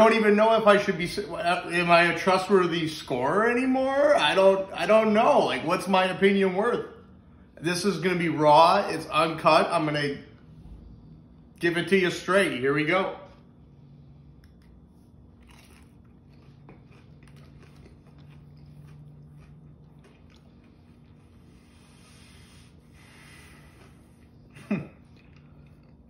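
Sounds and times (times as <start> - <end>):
low steady hum: 0.0 - 26.0
chewing crunchy food: 14.3 - 21.5, 24.2 - 26.0.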